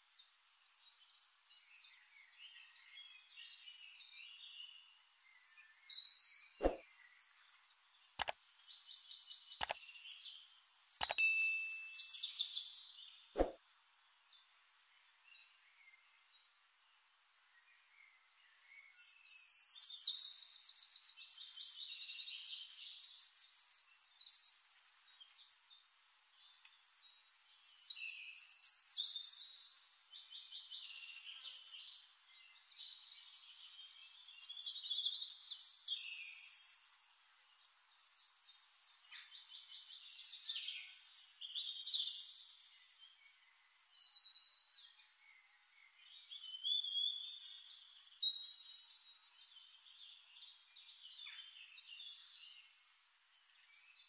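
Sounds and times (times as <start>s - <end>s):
songbird trills and whistles: 5.3s - 7.5s, 8.2s - 13.6s, 18.7s - 25.6s, 26.3s - 54.0s.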